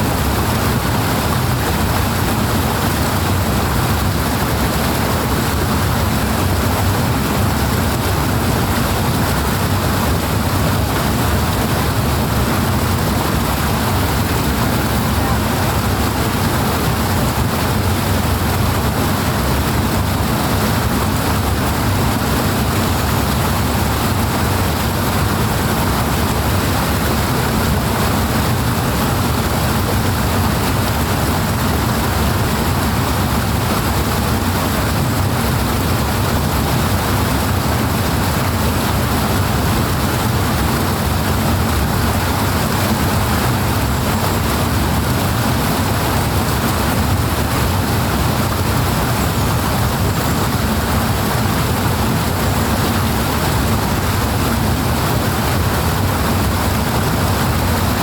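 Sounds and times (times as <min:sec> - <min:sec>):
water rushing and splashing: 0:00.0 - 0:58.0.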